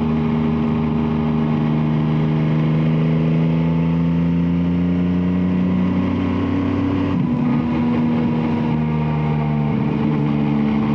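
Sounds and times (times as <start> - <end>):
motorcycle engine running: 6.7 - 10.9.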